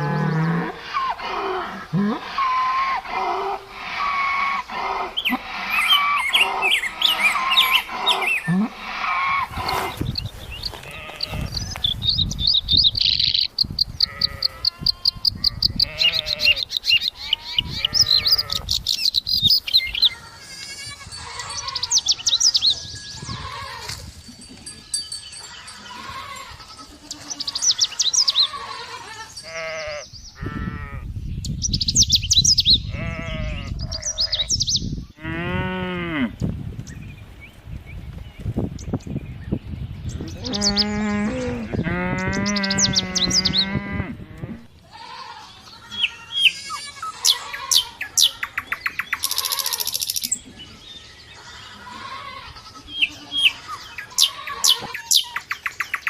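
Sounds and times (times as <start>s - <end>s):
livestock bleating: 10.8s - 11.8s, 14.0s - 16.6s, 17.2s - 18.7s, 20.0s - 22.1s, 23.2s - 24.1s, 24.7s - 31.1s, 32.8s - 34.2s, 40.4s - 48.5s, 49.2s - 50.0s, 50.6s - 55.4s
high bird chirps: 46.0s - 50.4s.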